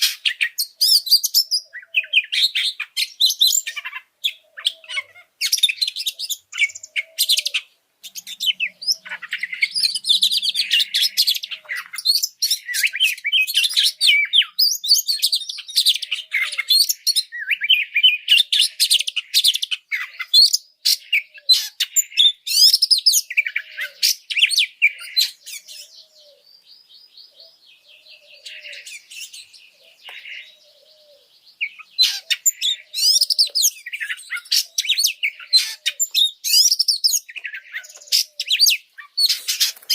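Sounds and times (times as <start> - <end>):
songbird singing whistles and chatter: 0.0 - 39.9.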